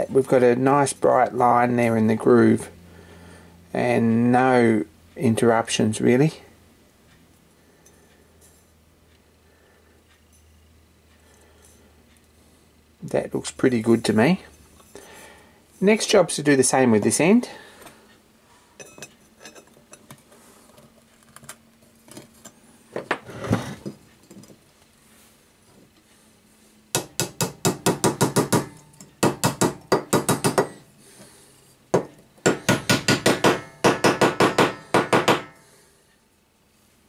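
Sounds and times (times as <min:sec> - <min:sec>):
parts being handled: 0:16.9 - 0:26.2
small hammer tapping on metal: 0:26.9 - 0:30.8, 0:31.9 - 0:35.6.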